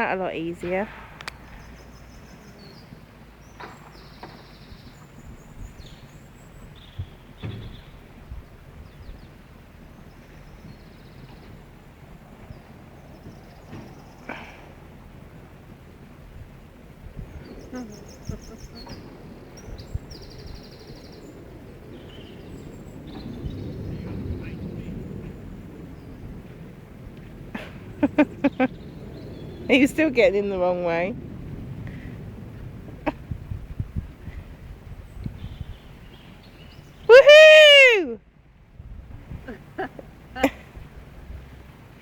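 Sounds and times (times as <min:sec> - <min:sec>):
small birds chirping: 0:00.0 - 0:09.4, 0:17.2 - 0:26.4, 0:27.8 - 0:31.1, 0:35.0 - 0:37.1
steady outdoor hiss: 0:00.0 - 0:42.0.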